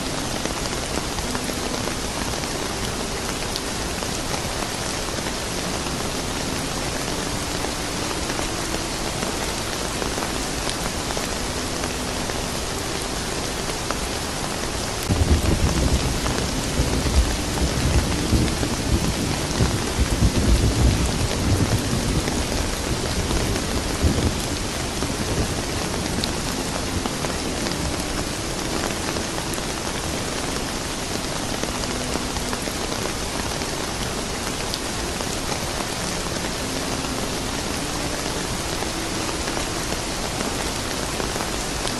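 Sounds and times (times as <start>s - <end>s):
steady rain: 0.0s - 41.9s
thunder rumbling: 15.0s - 30.4s.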